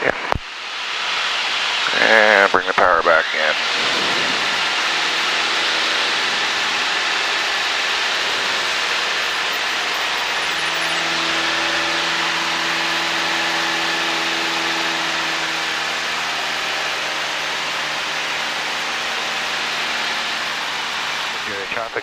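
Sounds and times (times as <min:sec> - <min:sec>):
airplane engine running: 0:01.9 - 0:22.0
rush of airflow: 0:03.6 - 0:08.6.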